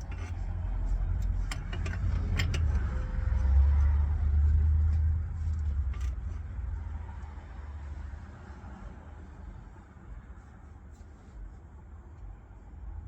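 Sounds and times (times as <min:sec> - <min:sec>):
engine rumbling: 0:00.0 - 0:08.0.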